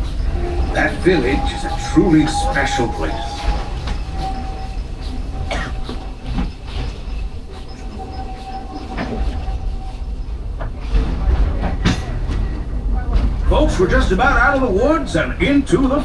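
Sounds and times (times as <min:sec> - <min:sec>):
thin high tone: 0:00.0 - 0:05.8
track clacks: 0:00.0 - 0:16.0
train rumbling on track: 0:00.0 - 0:16.0.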